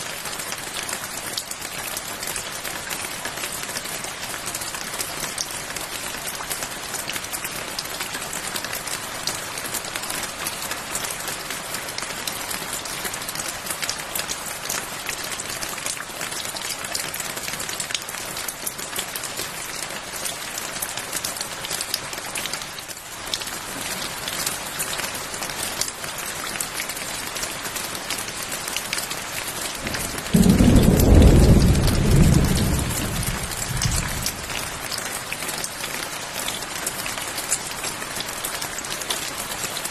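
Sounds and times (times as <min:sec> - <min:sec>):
steady rain: 0:00.0 - 0:39.9
thunderclap rumble: 0:29.8 - 0:34.8.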